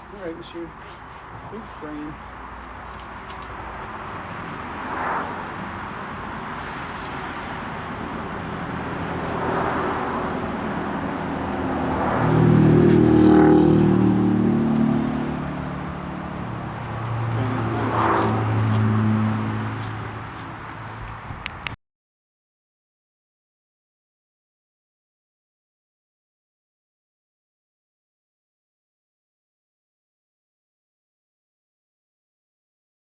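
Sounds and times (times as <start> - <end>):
outdoor noise: 0.0 - 21.8
vehicles passing by: 0.0 - 21.8.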